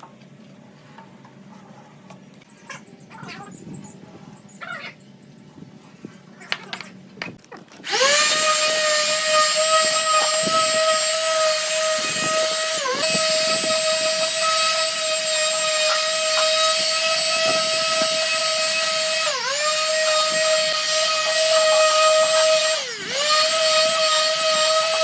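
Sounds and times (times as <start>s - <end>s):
power tool high whine: 7.8s - 25.0s.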